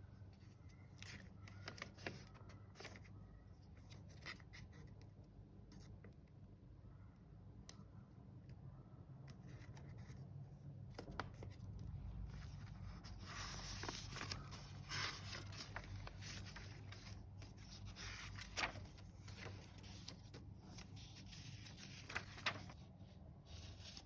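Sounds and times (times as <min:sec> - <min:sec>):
paper pages rustling: 0:00.4 - 0:03.2, 0:09.5 - 0:22.9, 0:23.5 - 0:24.0
soft clicks and crinkles: 0:07.6 - 0:22.8
low steady hum: 0:11.6 - 0:24.0.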